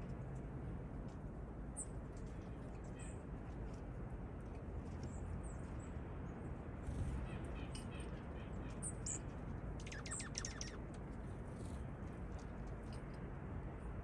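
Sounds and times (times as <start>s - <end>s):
low outdoor background hum: 0.0s - 14.0s
small songbirds chirping: 4.8s - 11.8s.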